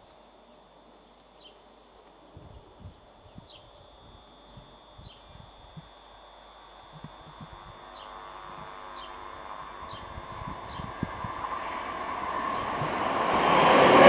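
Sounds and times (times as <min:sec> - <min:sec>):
bird chirps: 0:00.0 - 0:06.0, 0:06.9 - 0:11.1
high-pitched insect hum: 0:00.0 - 0:14.0
approaching train: 0:10.1 - 0:14.0.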